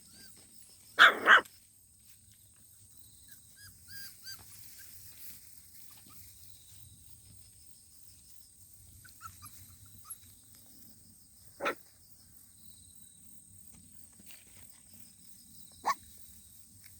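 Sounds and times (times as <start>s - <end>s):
puppy barking: 1.0s - 1.5s, 11.6s - 11.8s.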